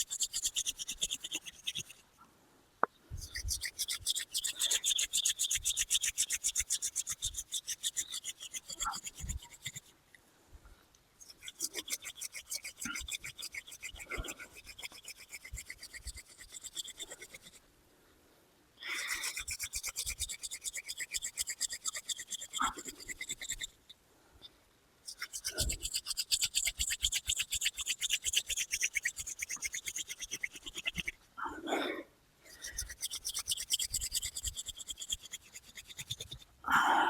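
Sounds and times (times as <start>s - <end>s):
wooden hand drill squeaking: 0.0s - 2.0s, 3.2s - 9.9s, 25.1s - 31.2s, 32.5s - 36.4s.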